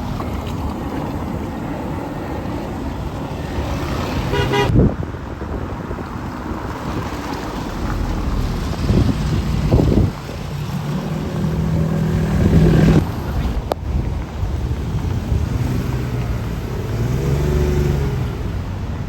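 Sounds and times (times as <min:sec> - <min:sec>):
road traffic passing: 0:00.0 - 0:19.0
loud vehicle passing: 0:01.6 - 0:19.0
vehicle horn toot: 0:04.2 - 0:04.8.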